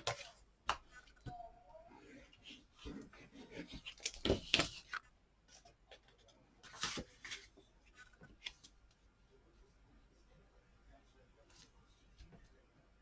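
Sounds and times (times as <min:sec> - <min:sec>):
paper rustling: 0:02.1 - 0:09.0.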